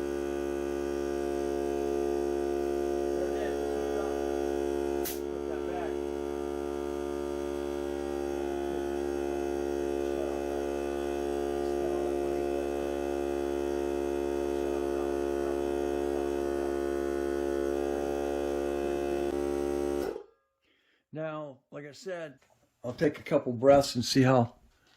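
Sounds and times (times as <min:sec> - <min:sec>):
air compressor motor hum: 0:00.0 - 0:20.2.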